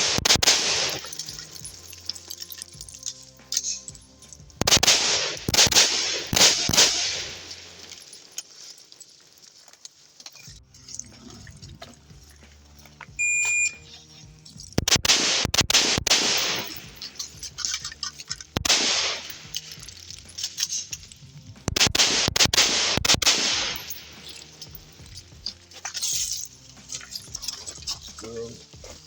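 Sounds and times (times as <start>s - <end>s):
rifle shots echoing: 0.0s - 1.6s, 4.6s - 8.2s, 14.8s - 17.5s, 18.6s - 19.8s, 21.6s - 24.4s
shot timer beep: 13.2s - 13.8s.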